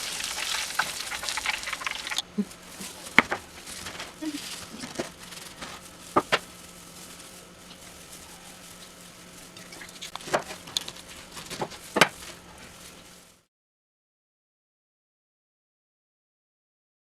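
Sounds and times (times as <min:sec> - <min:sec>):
faint steady hum: 0:00.0 - 0:13.5.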